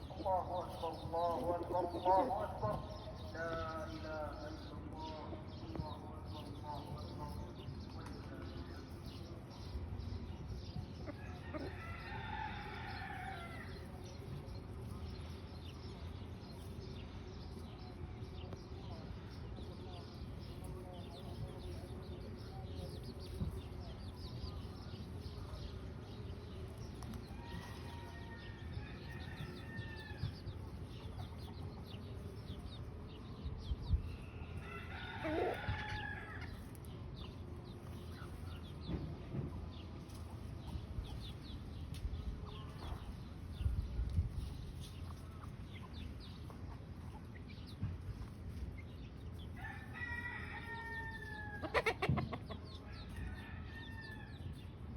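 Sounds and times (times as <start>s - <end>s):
chickens clucking and peeping: 0.0s - 54.9s
rooster crow: 34.6s - 36.5s, 49.6s - 51.6s.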